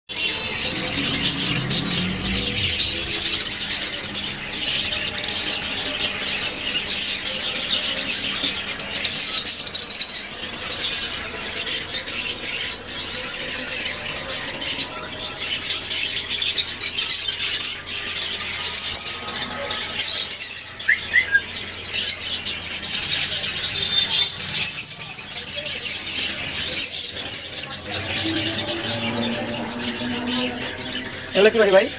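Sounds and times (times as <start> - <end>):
caged birds twittering: 0.1 - 31.9.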